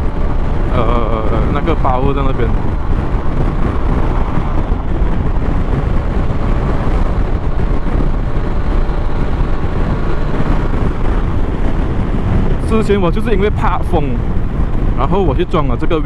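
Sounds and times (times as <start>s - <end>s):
scooter engine droning: 0.0s - 12.8s
wind rushing over microphone: 0.0s - 16.0s.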